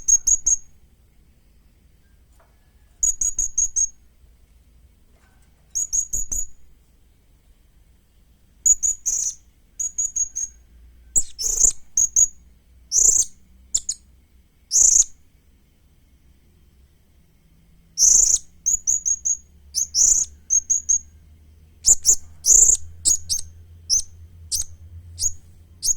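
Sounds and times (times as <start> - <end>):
parrot high-pitched chirps: 11.2 - 14.0, 14.7 - 15.2, 18.0 - 21.1, 21.8 - 25.9.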